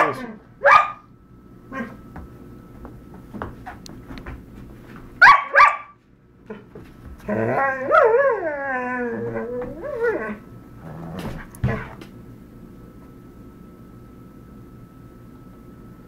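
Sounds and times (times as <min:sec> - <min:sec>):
dog barking: 0:00.0 - 0:01.1, 0:05.2 - 0:06.0
dog howling: 0:07.3 - 0:11.2.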